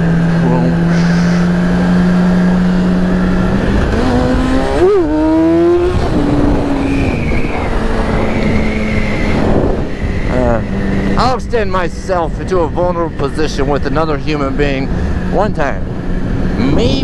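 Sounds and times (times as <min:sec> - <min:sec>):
motorcycle engine revving: 0:00.0 - 0:12.0
wind rushing over microphone: 0:00.0 - 0:17.0.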